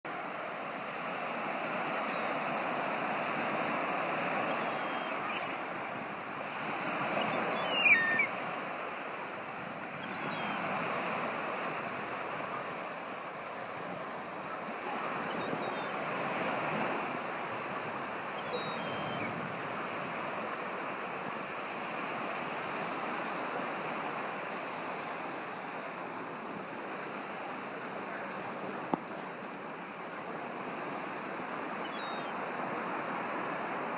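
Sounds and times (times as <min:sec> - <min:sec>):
waves breaking on a beach: 0:00.1 - 0:33.9
faint bird chirps: 0:04.5 - 0:05.6, 0:07.1 - 0:08.4, 0:10.0 - 0:10.6, 0:15.2 - 0:16.0, 0:18.3 - 0:19.4, 0:31.8 - 0:32.4
gull crying: 0:07.4 - 0:08.3.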